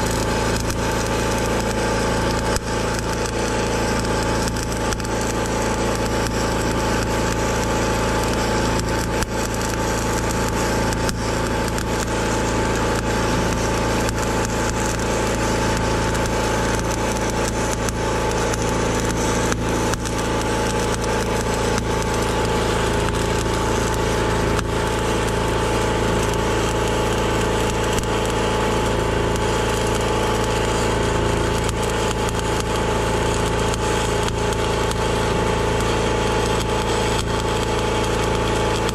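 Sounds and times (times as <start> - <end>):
heavy machine engine running: 0.0 - 38.9
sharp cracks and knocks: 0.2 - 7.4, 8.2 - 12.2, 13.0 - 28.4, 35.8 - 38.9.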